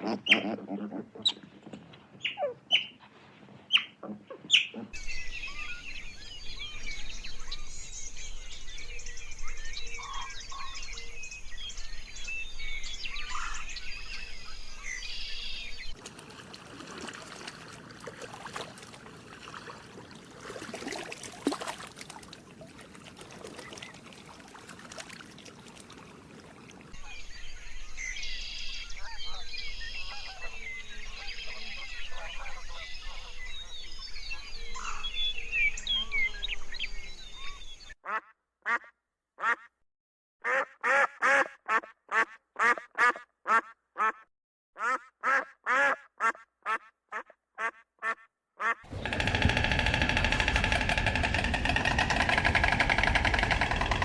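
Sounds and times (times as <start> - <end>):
small birds chirping: 3.7 - 16.0, 48.9 - 54.0
clicks and rustling: 48.9 - 54.0.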